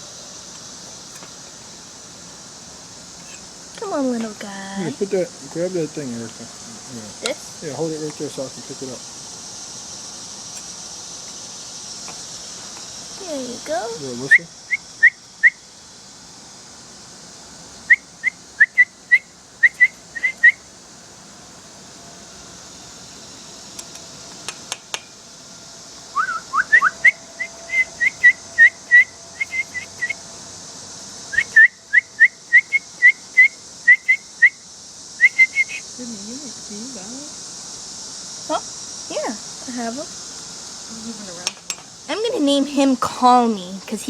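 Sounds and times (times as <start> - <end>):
person whistling chirp-like notes: 26.2 - 30.2.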